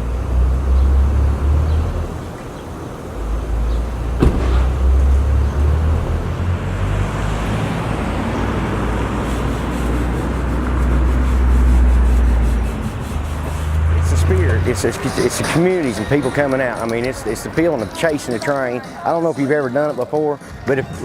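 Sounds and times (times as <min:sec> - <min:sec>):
vehicle engine rumble: 0:00.0 - 0:18.2
road traffic noise: 0:00.0 - 0:21.0
sharp knock: 0:04.2 - 0:04.9.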